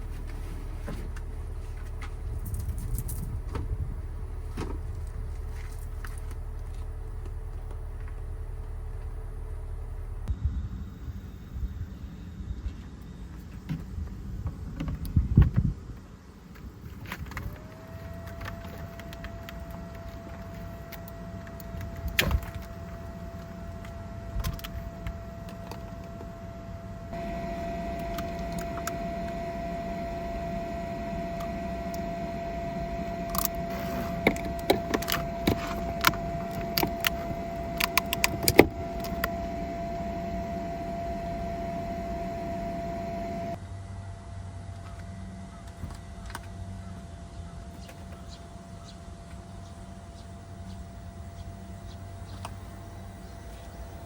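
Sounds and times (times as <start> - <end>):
small electric motor whining: 17.1 - 43.6, 47.8 - 54.0.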